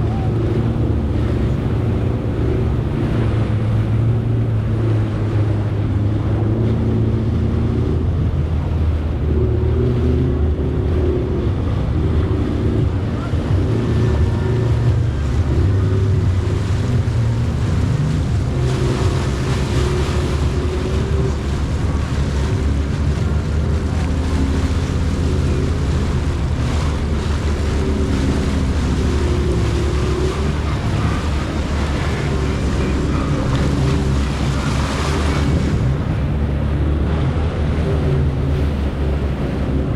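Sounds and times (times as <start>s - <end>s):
jet ski engine running: 0.0s - 39.9s
wind buffeting microphone: 0.0s - 39.9s
water spray rushing: 7.9s - 39.7s.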